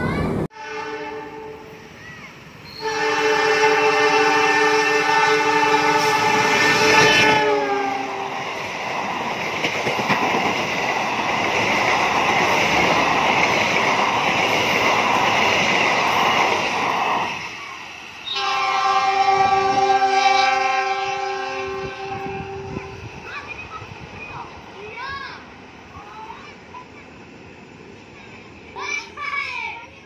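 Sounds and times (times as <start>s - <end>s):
locomotive multi-tone horn: 0.5s - 1.8s, 2.7s - 8.4s, 18.2s - 23.1s
train coaches clattering on rails: 2.0s - 30.0s.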